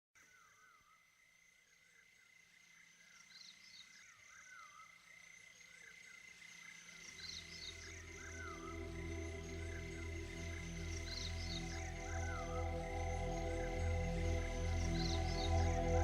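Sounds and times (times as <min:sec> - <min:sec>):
soft sustained music tones: 0:06.9 - 0:16.0
steady high buzz: 0:07.7 - 0:16.0.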